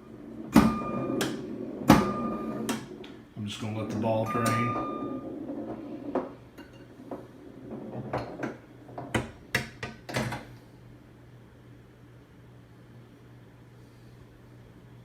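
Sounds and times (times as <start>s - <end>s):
pinball rolling metallic clicks: 0.0s - 10.5s
steady low hum: 0.0s - 15.0s.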